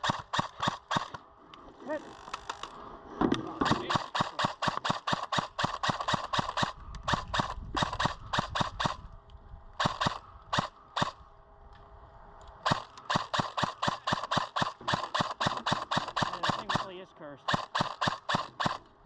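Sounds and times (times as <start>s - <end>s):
airsoft gun firing: 0.0s - 1.2s, 3.6s - 9.1s, 9.8s - 11.2s, 12.6s - 18.9s.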